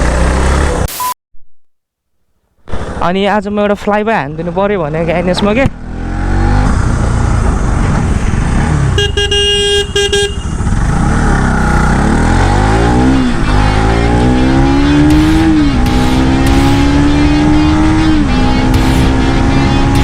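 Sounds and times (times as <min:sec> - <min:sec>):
motorcycle engine accelerating: 0:00.0 - 0:00.9, 0:04.9 - 0:20.0
vehicle horn beeps: 0:08.9 - 0:10.8.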